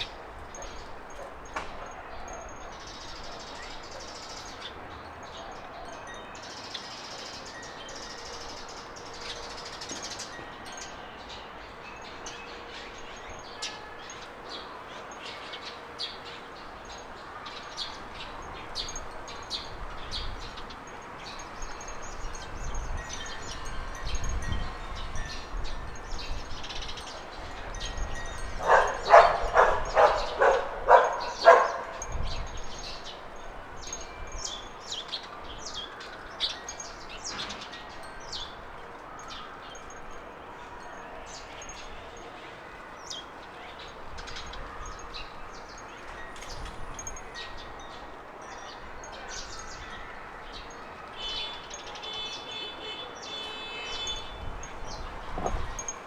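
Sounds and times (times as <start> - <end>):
small birds chirping: 0.0 - 40.2
dog barking: 28.6 - 32.0.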